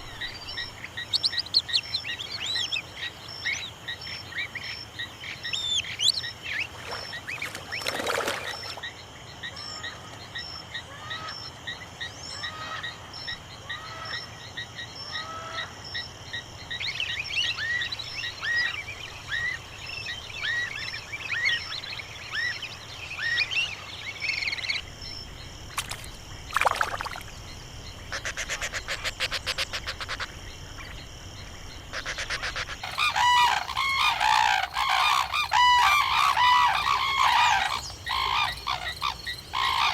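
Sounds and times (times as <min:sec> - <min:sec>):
repeated croaking calls: 0:28.0 - 0:31.0, 0:31.8 - 0:39.9
birds chirping and whistling: 0:32.8 - 0:39.9.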